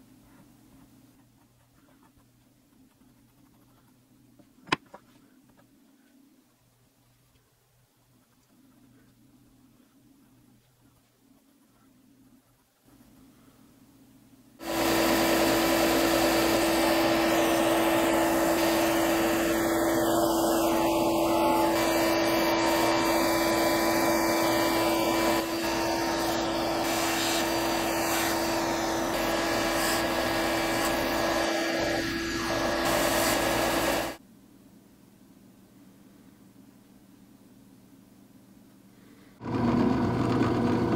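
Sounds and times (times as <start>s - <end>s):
sander motor hum: 14.6s - 34.2s, 39.4s - 40.9s
wood sanding hiss: 14.6s - 34.2s.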